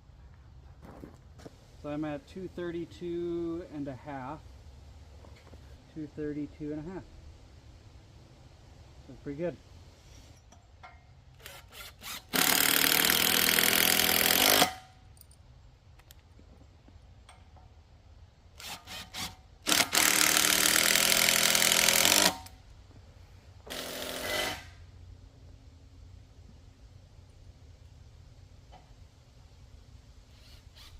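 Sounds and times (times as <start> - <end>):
handheld power tool running: 11.4 - 14.8, 18.6 - 22.5, 23.7 - 24.7.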